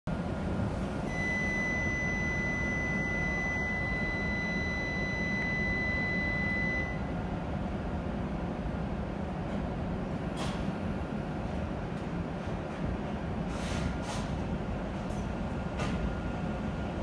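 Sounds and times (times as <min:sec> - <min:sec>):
high-pitched train whine: 0:00.2 - 0:07.4.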